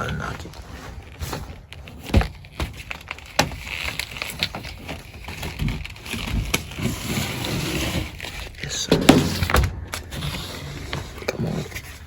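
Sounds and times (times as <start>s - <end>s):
kneeling pad knocking and scraping: 8.9s - 11.9s.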